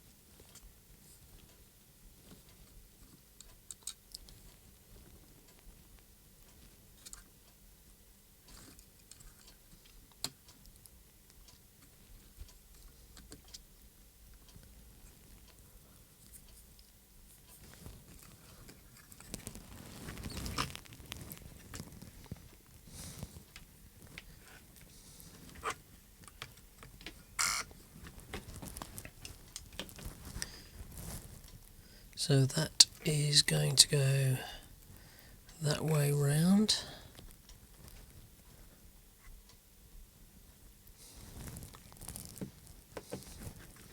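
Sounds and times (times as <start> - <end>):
small parts clicking and tapping: 3.4 - 4.5.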